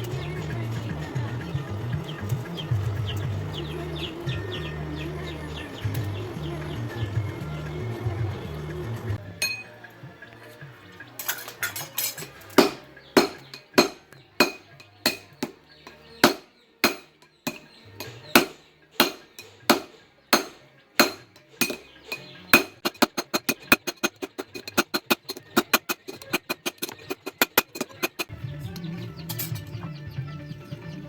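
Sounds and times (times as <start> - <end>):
hammer striking steel on anvil: 9.4 - 9.8, 11.2 - 28.3.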